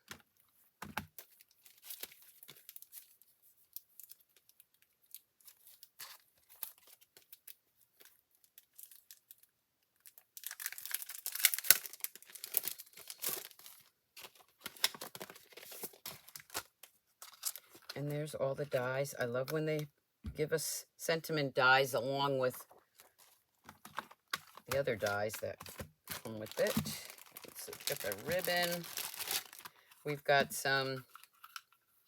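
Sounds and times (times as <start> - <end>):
packaging crinkling and tearing: 1.0 - 18.0, 22.7 - 30.0, 31.0 - 31.8
packaging taps and rustles: 10.4 - 18.0, 22.7 - 31.8.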